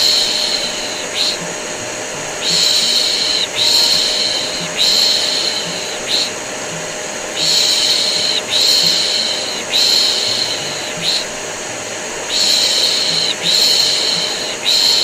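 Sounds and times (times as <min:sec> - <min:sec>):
vacuum cleaner drone: 0:00.0 - 0:15.0.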